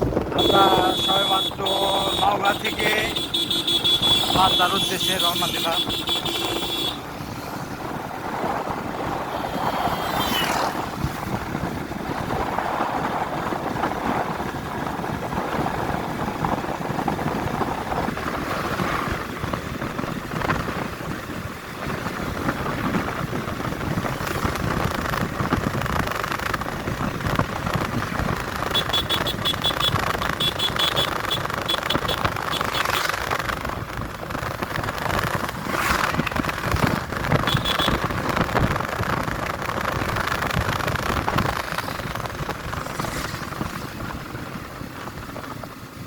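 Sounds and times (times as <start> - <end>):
vehicle engine and road rumble: 0.0 - 46.0.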